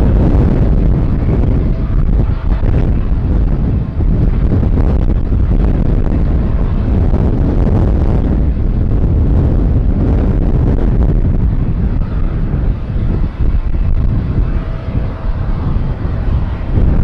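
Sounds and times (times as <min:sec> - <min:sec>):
jet engine roar: 0:00.0 - 0:17.0
wind buffeting the microphone: 0:00.0 - 0:17.0.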